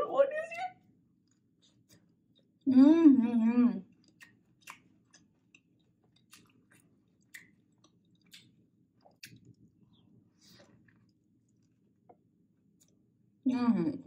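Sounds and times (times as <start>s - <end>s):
person chewing with mouth clicks: 3.9s - 9.7s.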